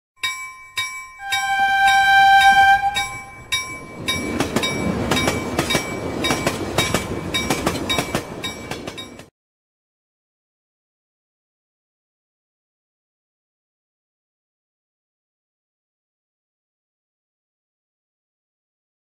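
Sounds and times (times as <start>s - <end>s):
locomotive horn: 1.2s - 3.4s
train wheels clicking over rail joints: 2.9s - 9.3s.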